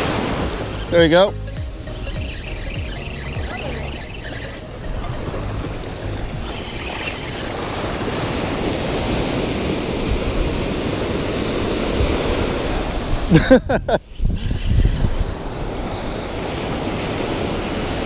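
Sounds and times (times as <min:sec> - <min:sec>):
surf washing up beach: 0:00.0 - 0:01.3, 0:04.0 - 0:13.6, 0:14.6 - 0:18.0
wind on microphone: 0:00.0 - 0:18.0.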